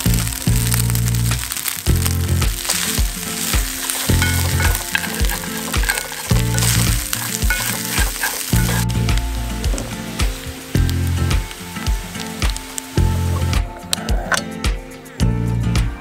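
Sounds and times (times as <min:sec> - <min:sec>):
utensil stirring in a pan: 0:00.0 - 0:13.6
food sizzling in a pan: 0:00.0 - 0:14.6
background music with low beat: 0:00.0 - 0:16.0.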